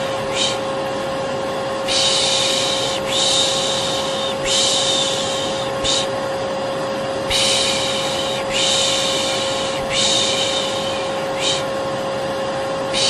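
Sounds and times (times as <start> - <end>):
person shushing: 0.0 - 0.6, 1.9 - 6.2, 7.3 - 11.7
vacuum cleaner running: 0.0 - 13.0.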